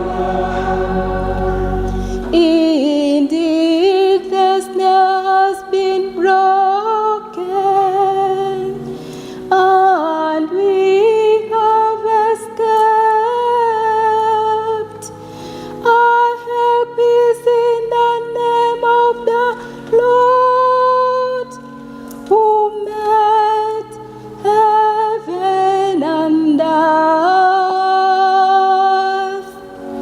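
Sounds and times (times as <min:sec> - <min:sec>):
low held notes: 0:00.0 - 0:03.6
person singing psalm: 0:00.0 - 0:08.8.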